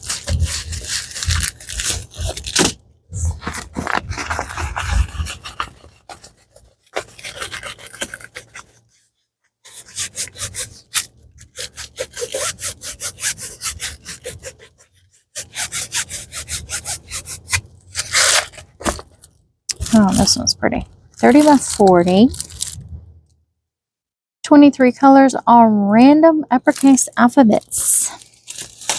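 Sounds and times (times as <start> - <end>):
packaging rustle: 0.0 - 8.8, 17.4 - 20.5, 21.2 - 22.9, 27.6 - 28.9
packaging rubbing and scraping: 0.0 - 9.1, 9.7 - 23.0, 26.7 - 28.9.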